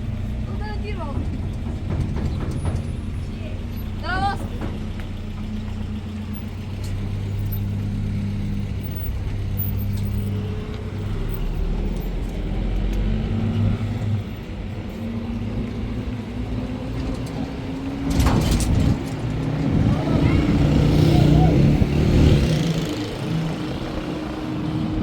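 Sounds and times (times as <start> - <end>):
vehicle engine humming: 0.0 - 25.0
clatter of knocks: 0.8 - 6.0, 16.7 - 19.9.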